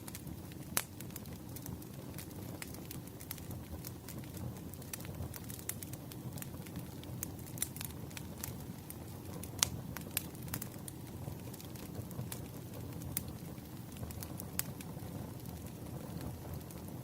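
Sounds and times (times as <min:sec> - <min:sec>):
campfire flames rumbling: 0:00.0 - 0:17.0
wood crackling and popping: 0:00.0 - 0:17.0.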